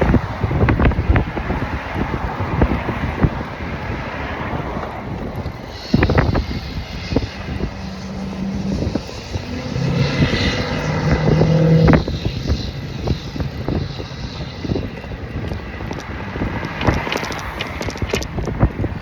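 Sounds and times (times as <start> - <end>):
wind buffeting microphone: 0.0 - 19.0
motor humming: 5.1 - 16.0.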